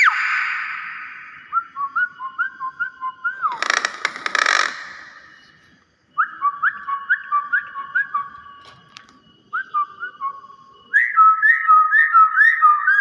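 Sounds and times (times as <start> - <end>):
bird whistling a rising note: 0.0 - 3.8.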